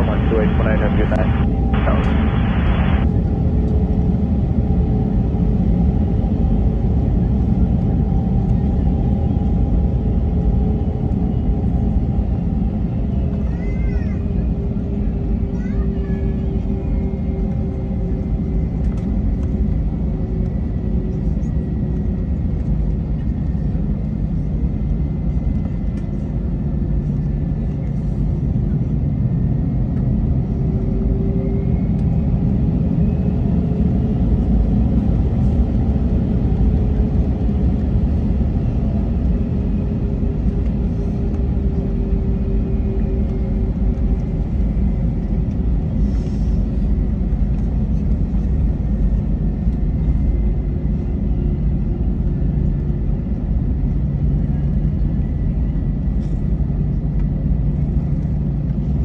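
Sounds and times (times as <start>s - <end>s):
faint whining tones: 0.0s - 3.2s
jet engines humming: 0.0s - 13.5s, 16.2s - 59.0s
low cabin rumble: 0.0s - 59.0s.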